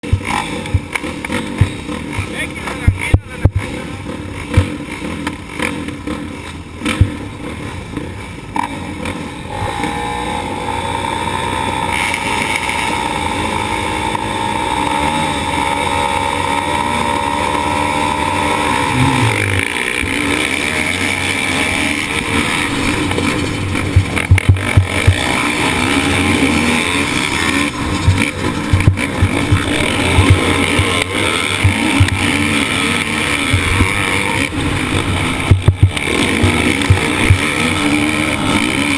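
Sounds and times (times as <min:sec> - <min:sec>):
motorcycle engine revving: 0:00.0 - 0:38.9
sharp knocks and jolts: 0:18.9 - 0:34.3, 0:34.9 - 0:38.9.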